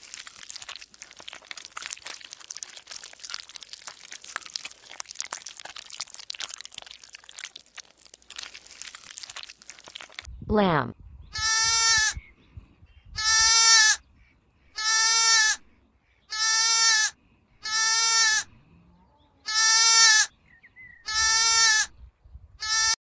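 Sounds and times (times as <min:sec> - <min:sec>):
lamb bleating: 0:11.4 - 0:12.2, 0:13.2 - 0:14.0, 0:14.8 - 0:15.6, 0:16.3 - 0:18.5, 0:19.4 - 0:20.3, 0:21.0 - 0:21.9, 0:22.6 - 0:23.0.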